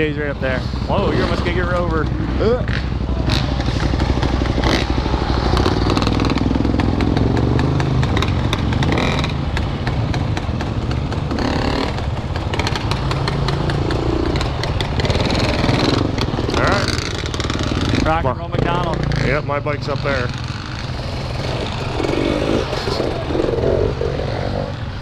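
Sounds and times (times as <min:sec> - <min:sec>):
dirt bike engines revving: 0:00.0 - 0:25.0
clicks and clatter: 0:03.6 - 0:18.0.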